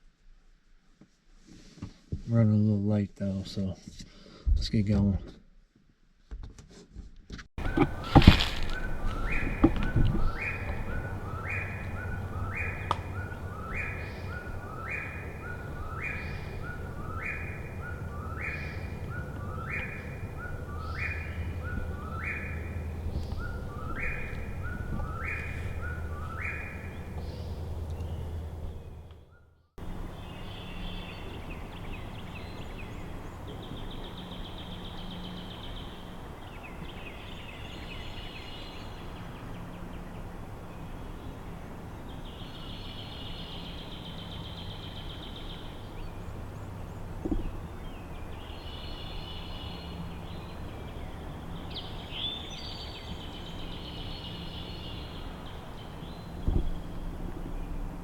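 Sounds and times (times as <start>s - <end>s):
faint high chattering birdsong: 7.6s - 58.0s.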